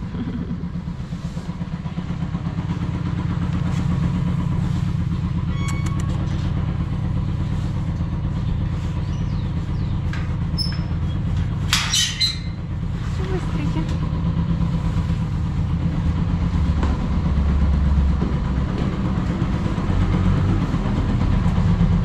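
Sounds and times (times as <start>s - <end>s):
motorcycle engine idling: 0.0s - 11.7s, 12.4s - 22.0s
brief click: 5.6s - 6.2s.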